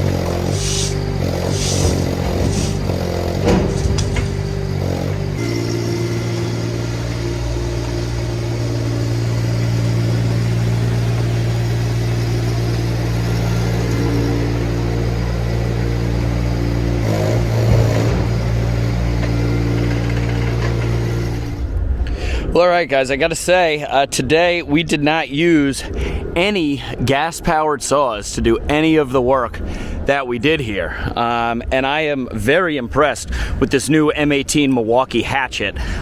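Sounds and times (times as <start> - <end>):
engine running steadily: 0.0 - 22.5.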